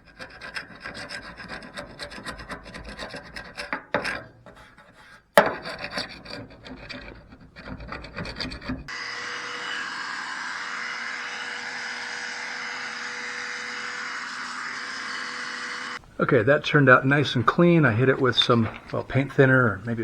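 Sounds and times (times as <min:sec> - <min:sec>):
scraping and scrubbing strokes: 0:00.0 - 0:09.1, 0:09.8 - 0:20.0
faint steady hum: 0:10.7 - 0:20.0
steady hiss: 0:13.5 - 0:20.0.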